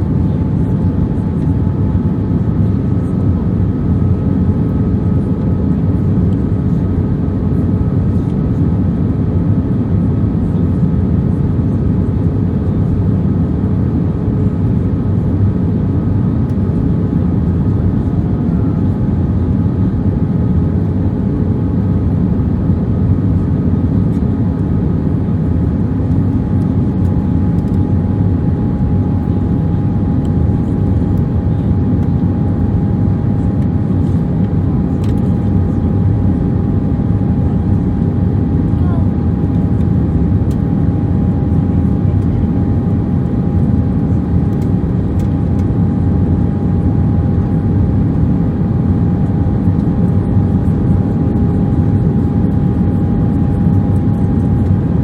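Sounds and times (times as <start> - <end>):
aircraft cabin rumble: 0.0 - 55.0
faint steady engine tones: 16.0 - 54.8.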